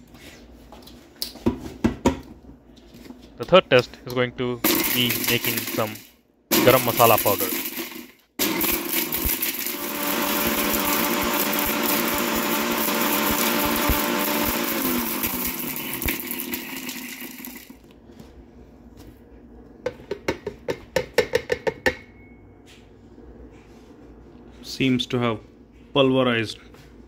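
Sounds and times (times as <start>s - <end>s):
mixer grinder motor whine: 4.7s - 5.9s, 6.5s - 17.8s.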